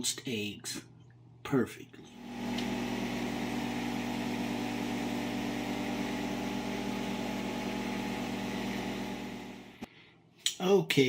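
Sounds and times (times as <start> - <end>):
microwave oven humming: 2.1 - 9.9.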